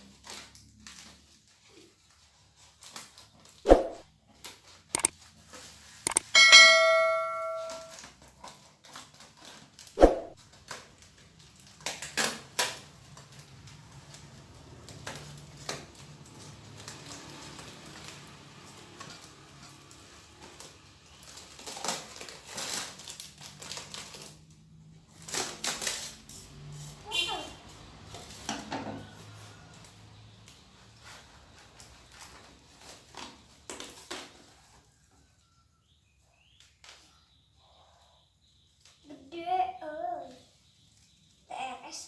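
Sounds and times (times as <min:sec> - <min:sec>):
clicks: 0:06.1 - 0:07.9
bell-like ding: 0:06.1 - 0:08.0.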